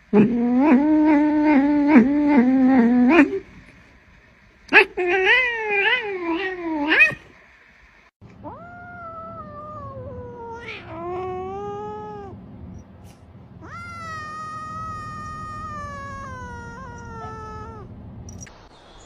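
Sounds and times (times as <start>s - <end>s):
cat yowling: 4.7s - 7.2s, 8.4s - 12.4s, 13.6s - 17.9s.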